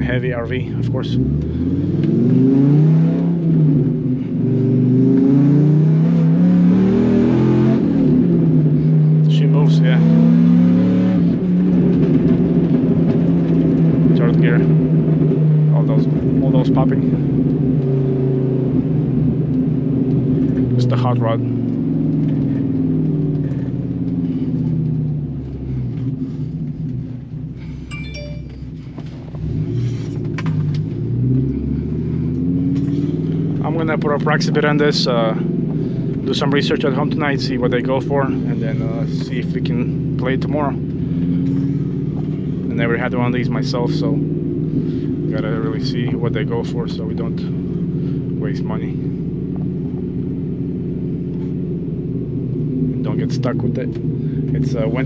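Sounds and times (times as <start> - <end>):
engine accelerating hard: 0.0 - 55.0
high chime-like tone: 27.9 - 28.7.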